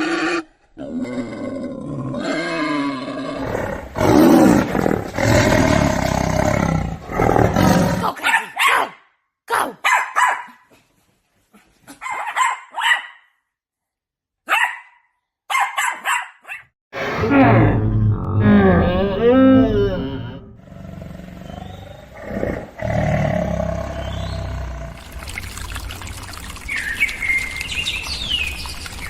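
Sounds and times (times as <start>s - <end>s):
animal growling: 0.0s - 8.2s, 17.0s - 25.1s
animal barking: 8.0s - 10.6s, 14.5s - 17.7s.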